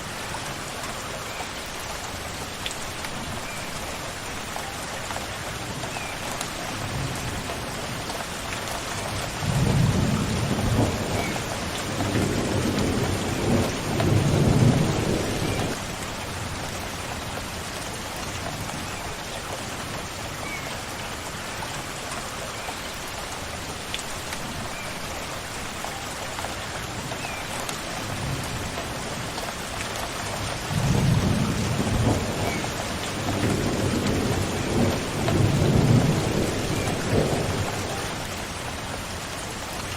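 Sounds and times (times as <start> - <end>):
steady rain: 0.0 - 39.9
thunder rolling: 33.3 - 38.2.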